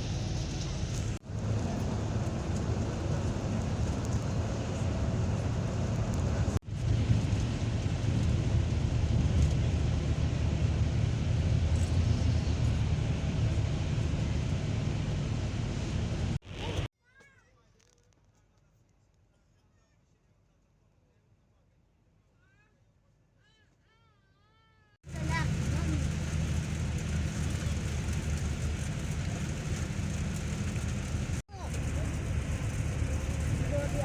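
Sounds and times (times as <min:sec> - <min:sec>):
vehicle road noise: 0:00.0 - 0:16.9, 0:25.0 - 0:34.0.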